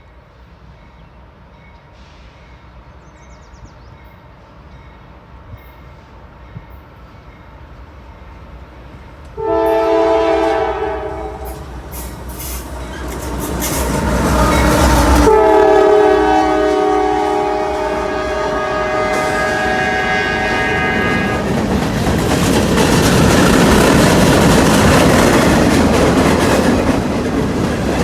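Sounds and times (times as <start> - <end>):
train air horn blast: 9.4 - 21.5
locomotives rushing past: 9.8 - 28.0.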